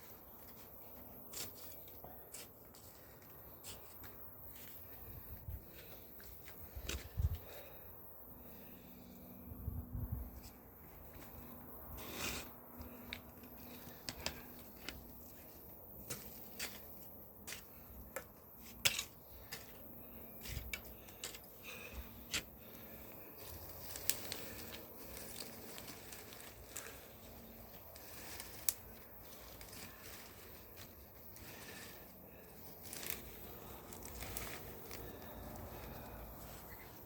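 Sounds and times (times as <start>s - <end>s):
snapping and crackling in soil: 10.4s - 37.0s
roots and plastic tearing: 12.0s - 37.0s.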